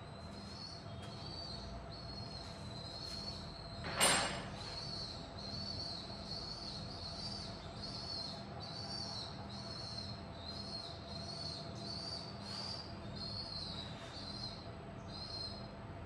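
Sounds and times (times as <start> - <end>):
bird calling: 0.2 - 15.8.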